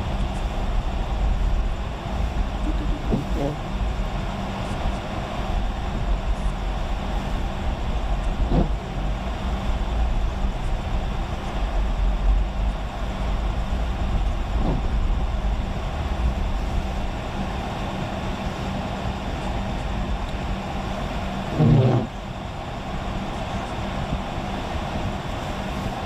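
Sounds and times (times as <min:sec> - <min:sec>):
road and engine noise inside vehicle: 0:00.0 - 0:26.0
brief sliding tone: 0:21.6 - 0:22.1.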